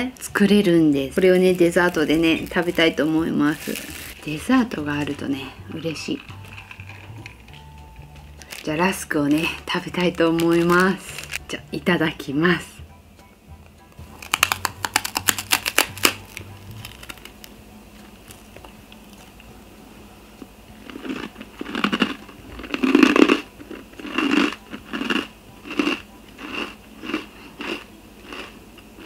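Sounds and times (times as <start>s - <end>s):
crisp rusk cracking when bitten: 14.2s - 17.5s
crunchy chewing: 20.8s - 29.0s.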